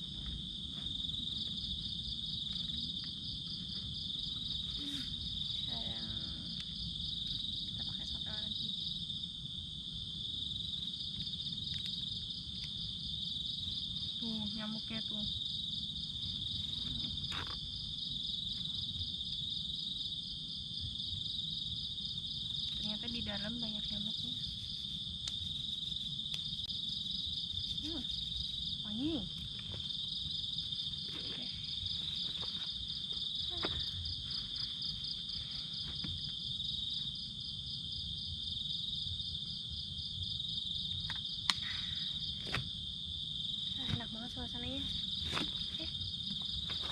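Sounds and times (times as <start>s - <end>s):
crickets chirping: 0.0s - 46.9s.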